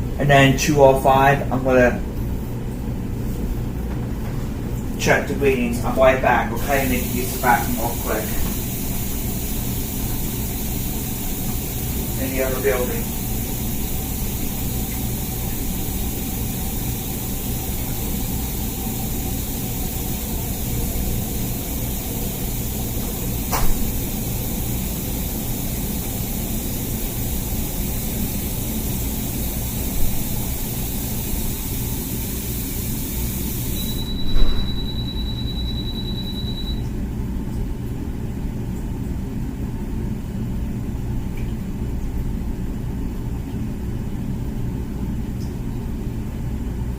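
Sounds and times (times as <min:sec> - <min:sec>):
dishwasher pump humming: 0:00.0 - 0:46.9
water spraying: 0:05.1 - 0:34.6
thin high tone: 0:33.7 - 0:36.8.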